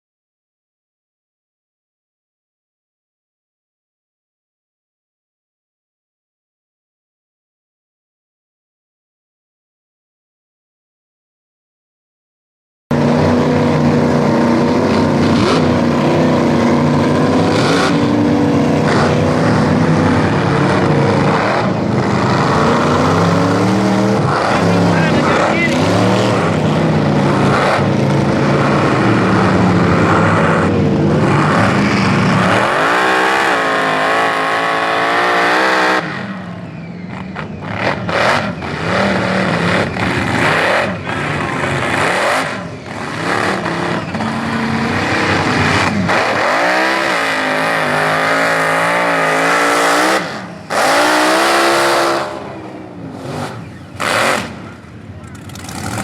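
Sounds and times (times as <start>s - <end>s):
truck engine revving hard: 12.9s - 56.0s.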